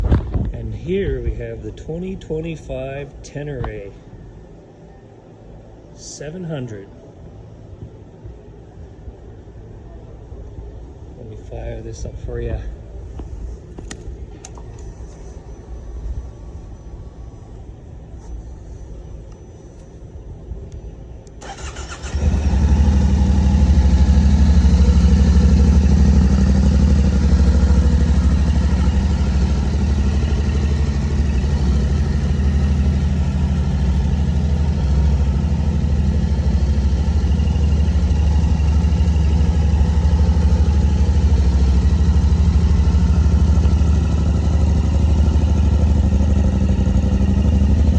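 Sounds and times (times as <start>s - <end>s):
electric starter cranking: 21.4s - 22.7s
motorcycle engine idling: 21.4s - 47.9s.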